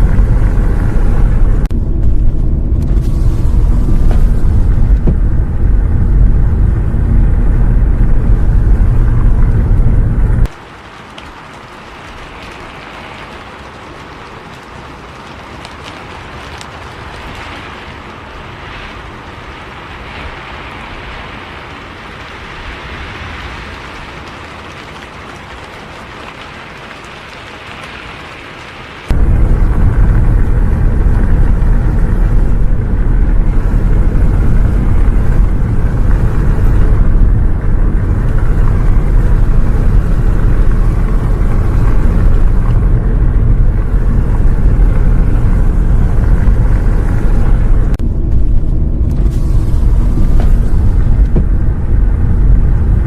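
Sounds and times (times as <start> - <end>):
bus engine rumble: 0.0 - 10.5, 29.1 - 53.0
rain hiss: 0.0 - 53.0
road noise: 0.0 - 53.0.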